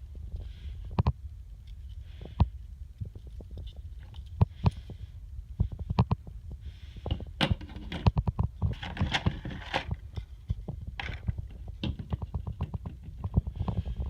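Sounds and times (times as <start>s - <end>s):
crinkly packaging rustling: 7.5s - 13.3s.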